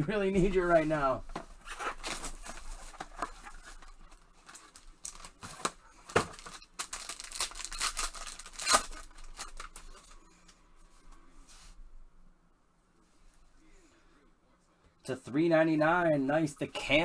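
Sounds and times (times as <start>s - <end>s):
packaging tearing and crinkling: 1.6s - 10.0s.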